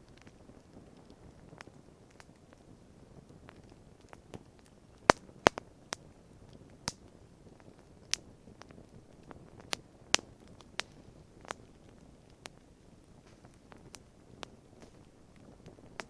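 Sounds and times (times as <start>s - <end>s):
campfire crackling and popping: 0.0s - 16.0s
faint steady hiss: 0.0s - 16.0s.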